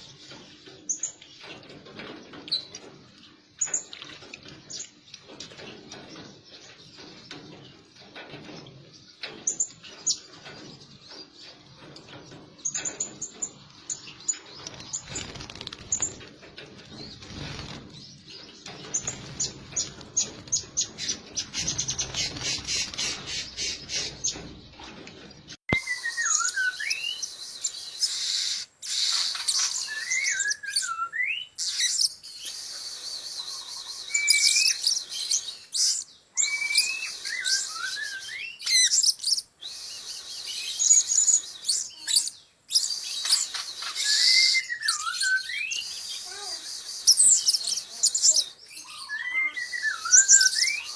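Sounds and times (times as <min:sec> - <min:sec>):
gliding bird whistles: 0:25.7 - 0:50.9
parrots chirping and squeaking: 0:27.9 - 0:32.6, 0:33.6 - 0:39.6, 0:40.6 - 0:50.9.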